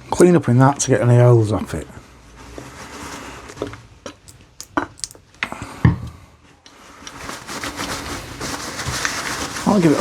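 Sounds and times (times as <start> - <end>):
tissue rubbing on metal tool: 2.4 - 3.5, 6.9 - 10.0.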